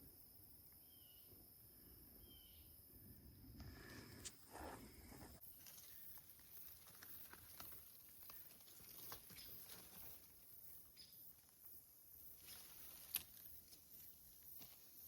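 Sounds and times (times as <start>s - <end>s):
faint crackles and ticks: 5.4s - 15.0s
high insect chirring: 5.4s - 15.0s.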